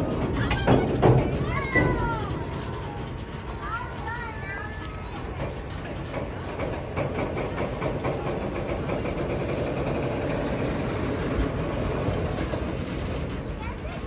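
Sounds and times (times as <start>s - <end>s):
diesel locomotive engine rumbling: 0.0s - 14.0s.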